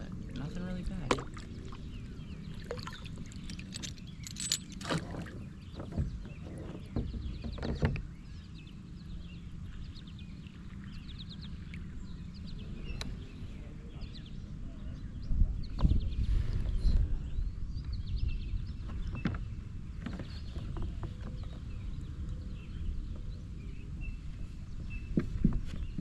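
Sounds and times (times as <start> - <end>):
steady low rumble: 0.0 - 5.7
knocks and bumps on kayak: 4.8 - 8.3.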